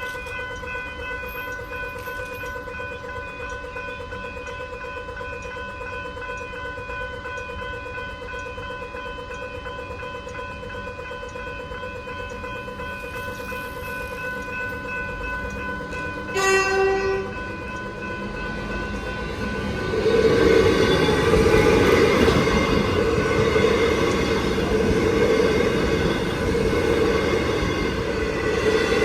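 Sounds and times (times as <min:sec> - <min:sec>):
level crossing bell: 0:00.0 - 0:29.0
train wheel and rail noise: 0:00.0 - 0:29.0
train horn blast: 0:16.3 - 0:17.4.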